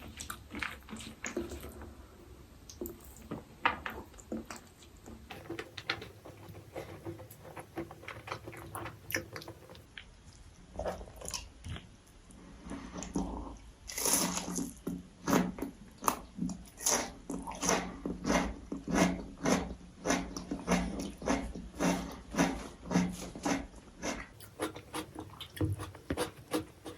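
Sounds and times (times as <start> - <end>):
regular strokes: 20.7 - 26.9
wet chewing and lip smacks: 24.3 - 26.9.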